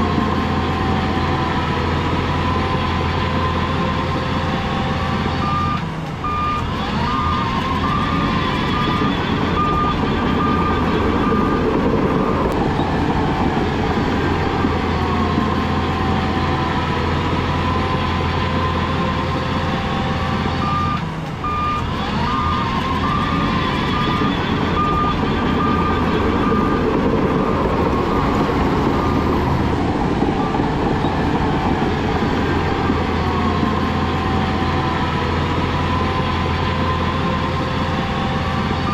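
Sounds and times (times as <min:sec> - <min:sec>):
heavy diesel machinery running: 0:00.0 - 0:38.9
reversing alarm beeping: 0:00.0 - 0:38.9.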